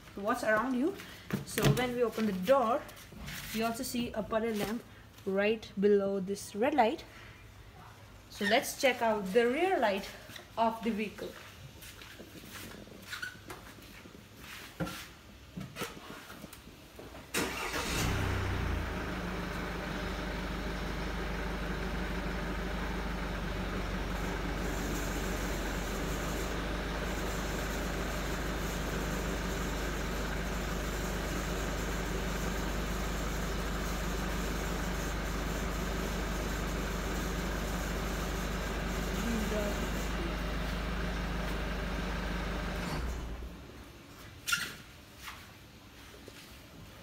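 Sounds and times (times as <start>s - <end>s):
car engine starting and idling: 17.3s - 43.7s.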